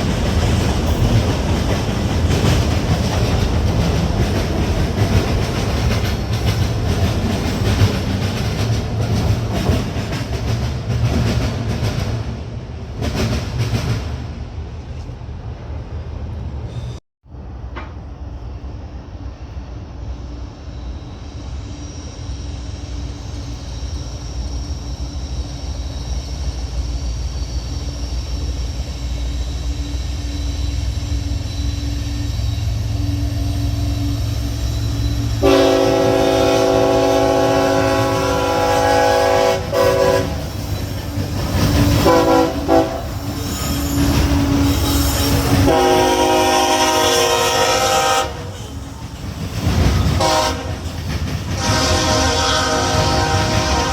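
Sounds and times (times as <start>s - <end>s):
diesel locomotive engine rumble: 0.0s - 53.9s
multi-chime air horn blasts: 35.4s - 40.4s.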